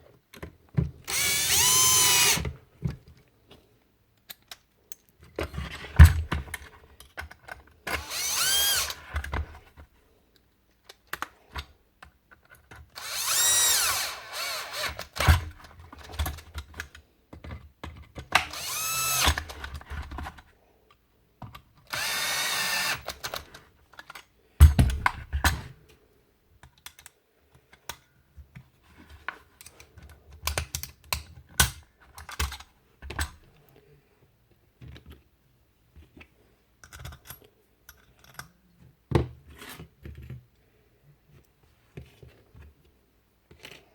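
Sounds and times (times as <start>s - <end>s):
tool parts clicking and knocking: 0.3s - 2.6s, 6.1s - 9.5s, 10.9s - 20.3s, 21.4s - 25.6s, 29.6s - 33.4s, 36.8s - 38.6s
cordless drill whining: 1.1s - 2.5s, 7.9s - 9.1s, 13.0s - 15.2s, 18.4s - 19.6s, 21.9s - 23.2s.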